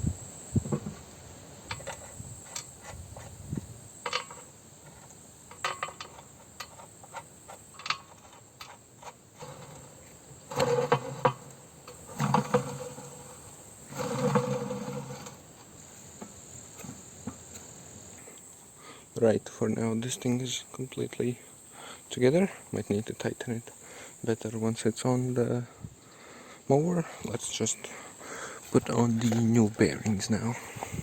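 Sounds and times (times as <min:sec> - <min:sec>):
metal parts clinking and knocking: 0:01.7 - 0:03.3, 0:04.0 - 0:15.4
metal scraping rattles: 0:01.7 - 0:17.6.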